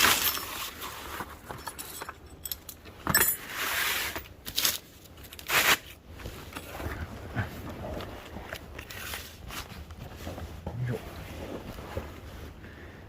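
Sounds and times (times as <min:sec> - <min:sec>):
metal tools clinking: 0:00.0 - 0:03.5
scraping rustles: 0:00.0 - 0:12.8.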